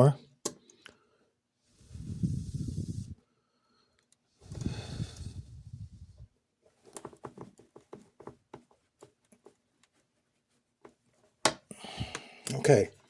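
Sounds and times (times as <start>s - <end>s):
screwdriver tapping and scratching plastic: 6.9s - 10.0s.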